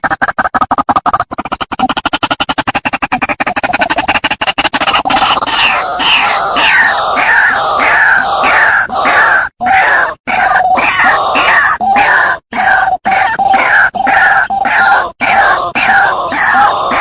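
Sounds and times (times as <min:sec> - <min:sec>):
waterhen calling harshly: 0:05.0 - 0:17.0.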